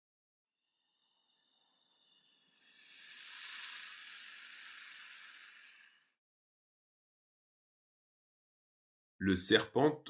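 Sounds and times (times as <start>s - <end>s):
snake hissing: 0.5s - 6.2s.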